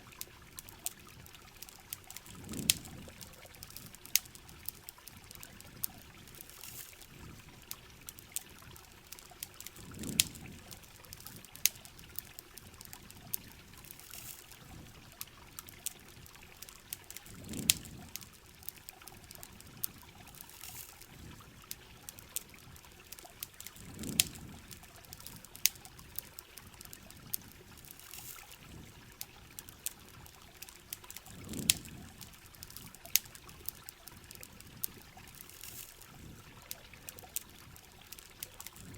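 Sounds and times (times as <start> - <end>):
campfire crackling and popping: 0.0 - 38.9
rain: 0.0 - 38.9
running water: 0.0 - 38.9.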